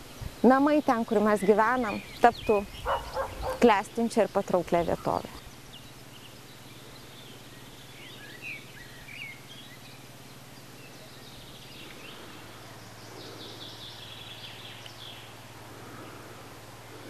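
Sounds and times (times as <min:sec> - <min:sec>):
bird song notes: 0:00.0 - 0:17.0
birds chirping: 0:00.0 - 0:17.0
steady low hum: 0:00.0 - 0:17.0.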